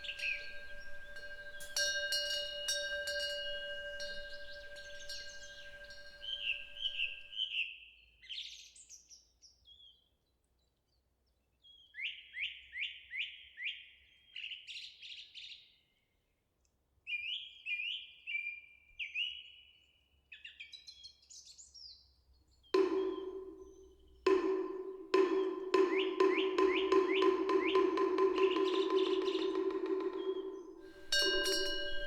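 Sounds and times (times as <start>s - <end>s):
songbird singing whistled notes: 0.0s - 7.6s, 22.8s - 32.0s.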